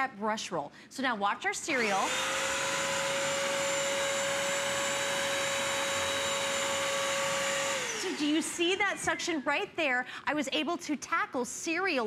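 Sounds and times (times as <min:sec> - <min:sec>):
wet dry vacuum running: 0:01.7 - 0:09.5.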